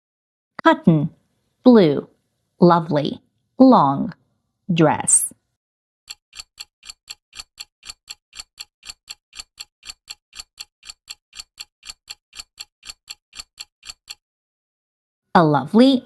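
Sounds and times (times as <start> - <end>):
clock ticking: 6.1 - 14.2.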